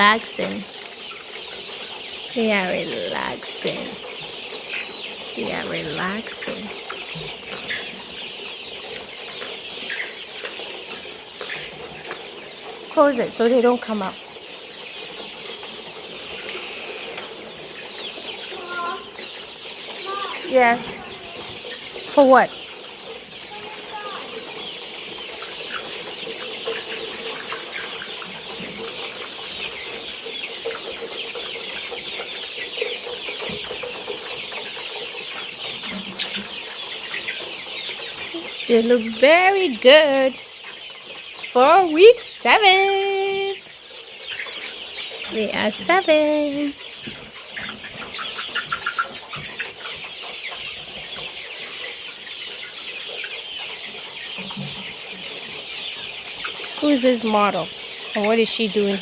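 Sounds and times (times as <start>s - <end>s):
chickens peeping and cheeping: 0.0s - 59.0s.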